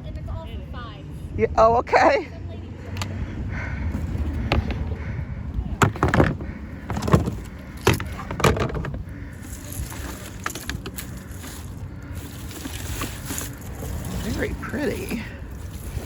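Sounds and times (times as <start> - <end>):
wind rumble on microphone: 2.7 - 16.0
decorations clattering in plastic tote: 5.8 - 16.0.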